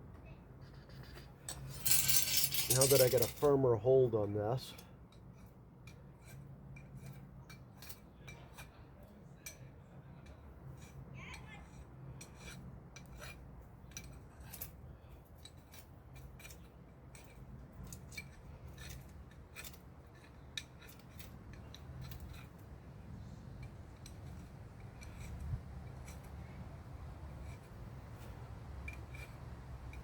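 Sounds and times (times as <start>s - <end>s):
small metal tools clicking: 1.5s - 3.5s, 27.4s - 30.0s.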